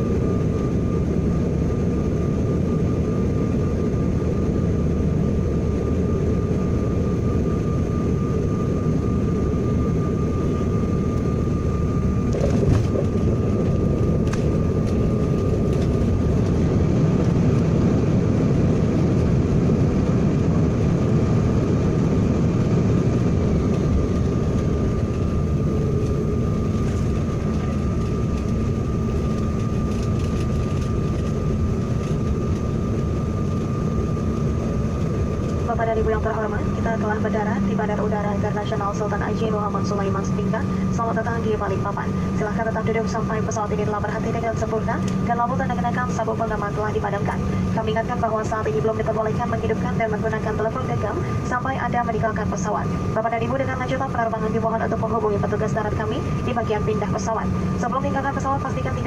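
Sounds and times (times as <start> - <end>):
jet cabin rumble: 0.0 - 59.0
thin steady whine: 0.0 - 59.0.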